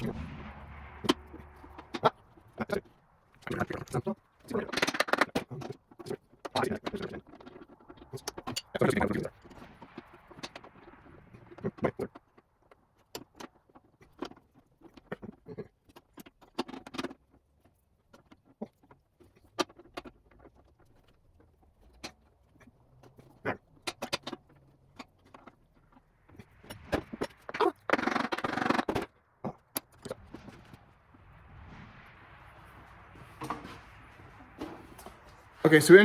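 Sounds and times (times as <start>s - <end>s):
metal scraping and rattling: 0.0s - 36.0s.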